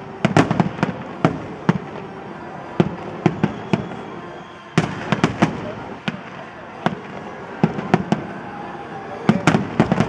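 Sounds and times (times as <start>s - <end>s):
fireworks bangs: 0.0s - 10.0s
fireworks crackling: 0.0s - 10.0s.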